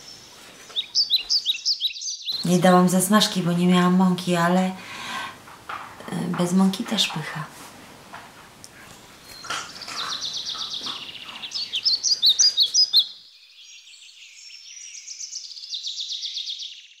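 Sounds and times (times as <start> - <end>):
bird chirps and trills: 0.0 - 3.4, 9.1 - 17.0.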